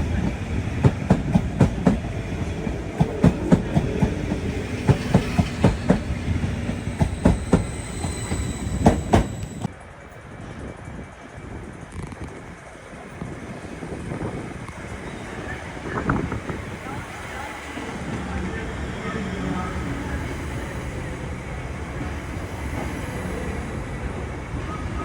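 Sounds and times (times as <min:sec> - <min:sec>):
train wheels clicking over rails: 0:00.0 - 0:09.7
train rumble: 0:00.0 - 0:25.0
thin high whine: 0:06.2 - 0:09.7.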